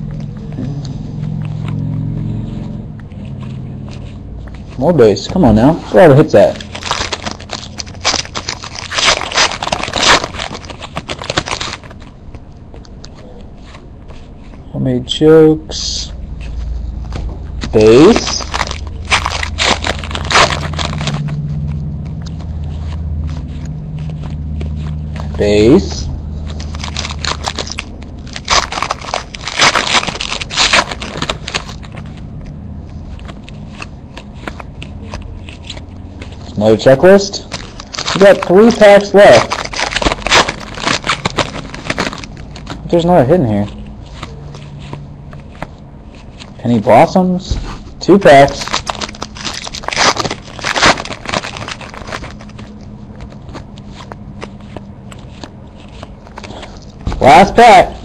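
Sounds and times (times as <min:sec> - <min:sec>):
trading cards rustling and sliding: 0:00.0 - 0:15.4, 0:16.1 - 0:58.0
wrapper tearing and crinkling: 0:06.0 - 0:13.8, 0:17.6 - 0:46.9, 0:47.7 - 0:57.8.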